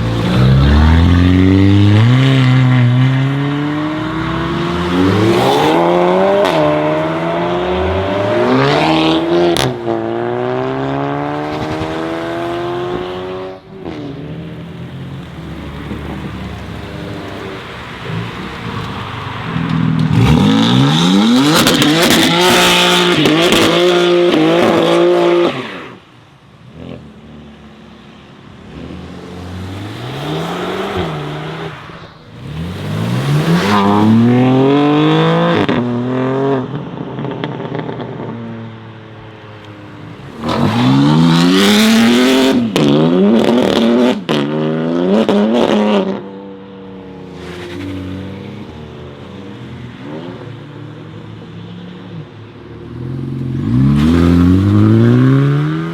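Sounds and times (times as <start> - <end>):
sports cars accelerating hard: 0.0 - 26.0, 28.6 - 38.3, 52.9 - 55.9.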